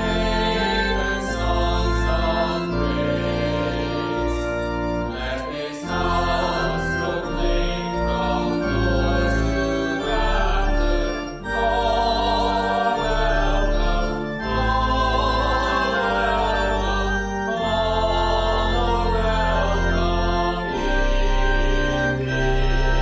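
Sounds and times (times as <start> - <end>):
congregation singing a hymn: 0.0 - 23.0
organ chords: 0.0 - 23.0.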